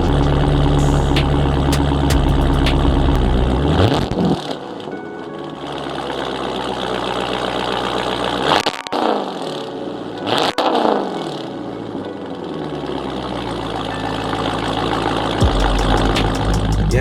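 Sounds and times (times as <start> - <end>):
car engine idling: 0.0 - 3.8, 13.3 - 17.0
engine revving: 0.0 - 4.2.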